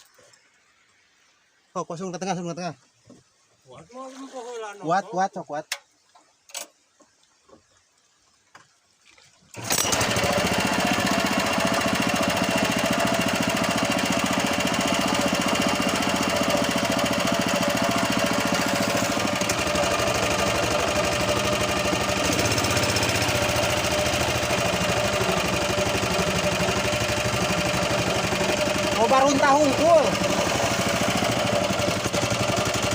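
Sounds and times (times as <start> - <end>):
boat engine running hard: 9.6 - 32.9.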